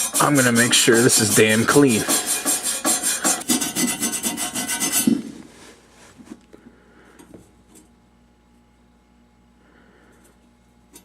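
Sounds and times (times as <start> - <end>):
abrasive mesh scrubbing pipe: 0.0 - 5.8.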